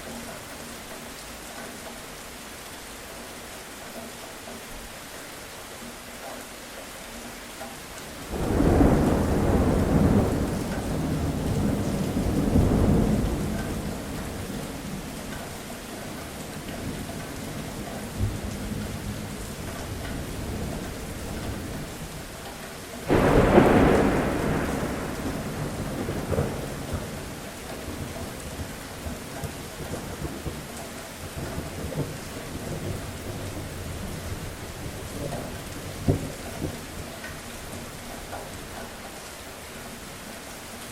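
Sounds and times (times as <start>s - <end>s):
steady rain falling: 0.0s - 40.9s
thunder rolling: 8.3s - 14.8s, 23.1s - 30.6s.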